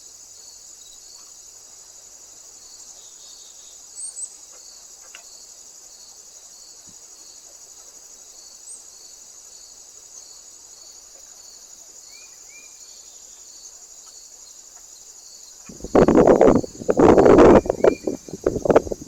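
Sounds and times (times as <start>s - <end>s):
crickets chirring: 0.0s - 19.0s
lower pulsing chirp: 15.7s - 19.0s.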